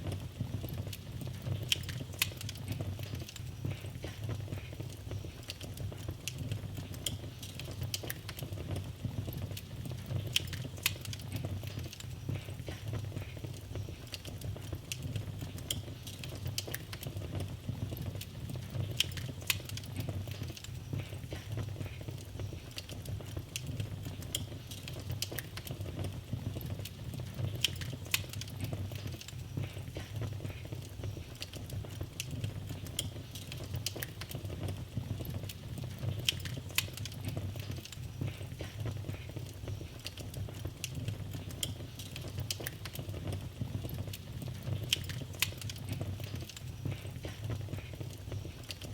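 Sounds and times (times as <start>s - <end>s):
wood fire crackling: 0.0s - 48.9s.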